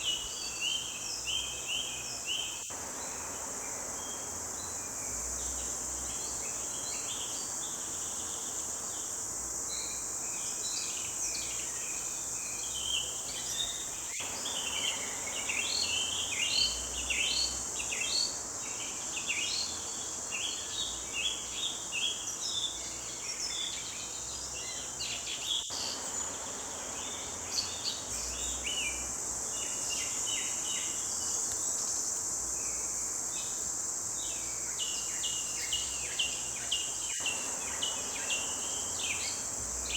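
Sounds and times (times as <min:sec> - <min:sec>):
high-pitched insect drone: 0:24.6 - 0:39.9.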